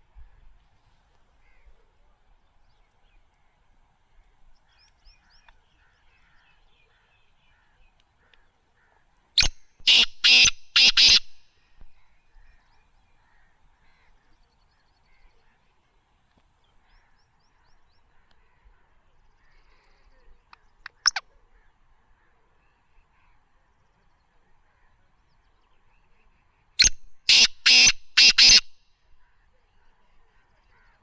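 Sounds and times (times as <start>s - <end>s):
francolin harsh grating call: 9.9s - 11.4s, 27.2s - 28.7s
faint bird chirping: 12.0s - 31.0s.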